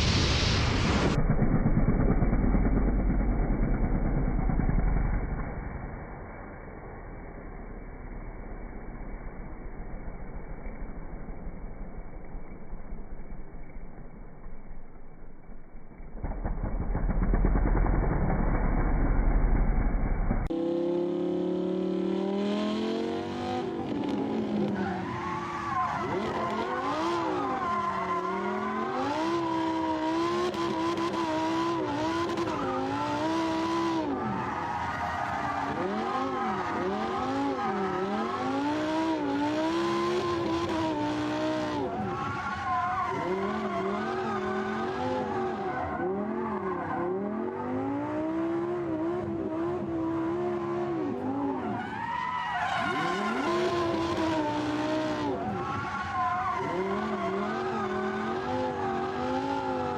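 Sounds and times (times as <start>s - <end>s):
race car engine revving: 16.2s - 52.0s, 52.6s - 59.9s
tyre squeal: 51.4s - 59.9s.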